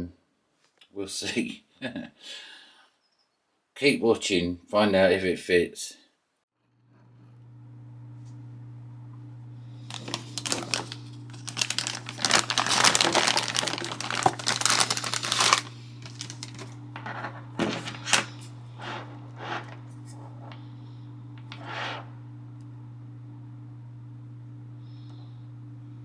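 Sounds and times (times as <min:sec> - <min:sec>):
steady low hum: 0:06.8 - 0:26.0
plastic packaging crinkling: 0:09.8 - 0:20.2.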